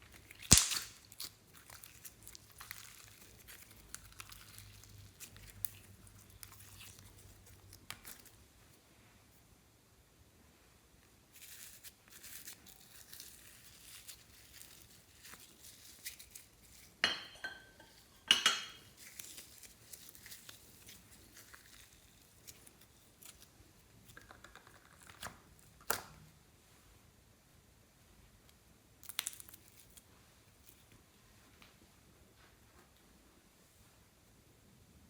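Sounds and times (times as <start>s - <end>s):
slime being mixed: 0.0s - 8.4s, 11.3s - 17.0s, 18.9s - 26.0s.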